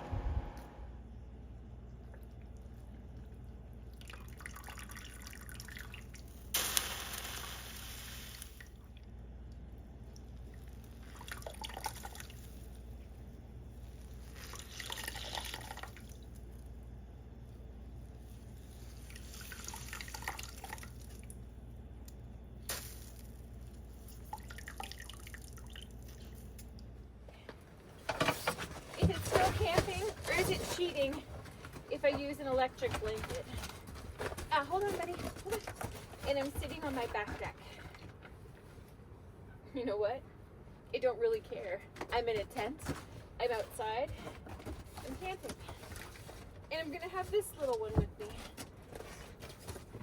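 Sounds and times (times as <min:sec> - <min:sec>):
steady low hum: 0:00.0 - 0:50.0
liquid dripping and splashing: 0:19.0 - 0:21.4, 0:22.6 - 0:26.8
liquid dripping: 0:24.0 - 0:26.9
rustling: 0:28.0 - 0:39.0.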